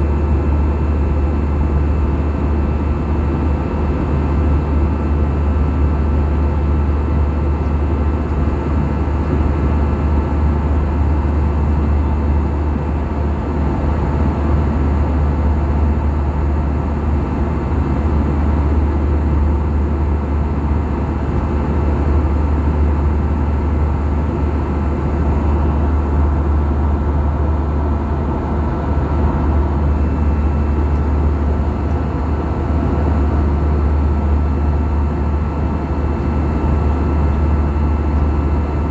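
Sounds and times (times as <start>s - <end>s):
jet engine drone: 20.2s - 38.9s.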